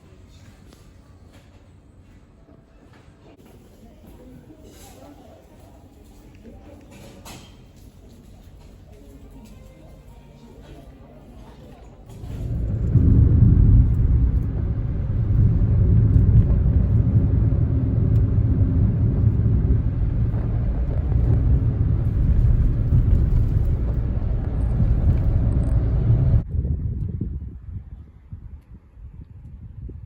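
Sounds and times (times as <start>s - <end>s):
car engine rumble: 12.0s - 26.5s
road noise: 12.0s - 26.5s.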